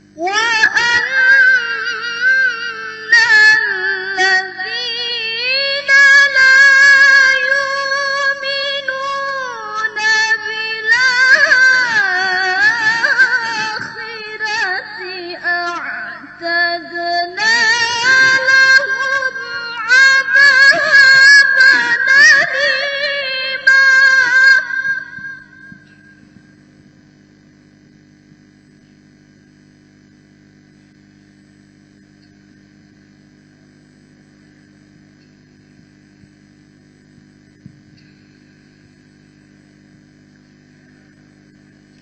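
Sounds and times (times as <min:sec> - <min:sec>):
woman chanting: 0:00.2 - 0:26.5.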